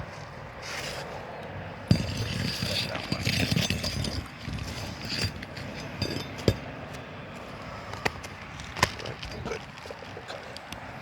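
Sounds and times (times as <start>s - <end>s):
shingles clicking and knocking: 1.4s - 7.1s.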